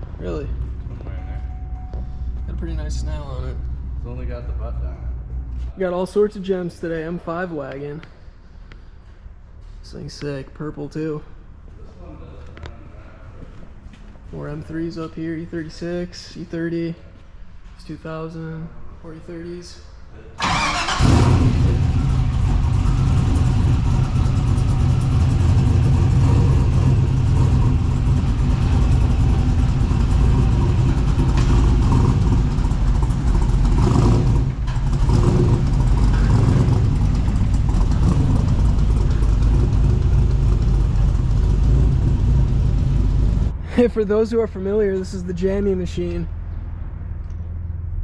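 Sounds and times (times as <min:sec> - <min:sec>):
car engine exhaust rumble: 0:20.8 - 0:48.0.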